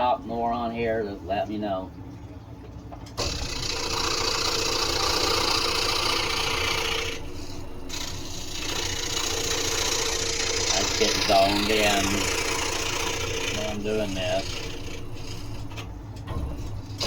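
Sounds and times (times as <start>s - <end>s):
scroll saw cutting wood: 3.2s - 15.9s.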